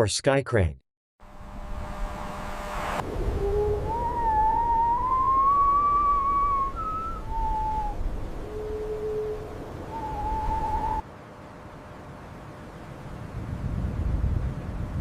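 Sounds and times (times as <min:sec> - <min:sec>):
steady low rumble: 0:01.2 - 0:11.0
eerie wavering whistling tone: 0:02.8 - 0:11.0.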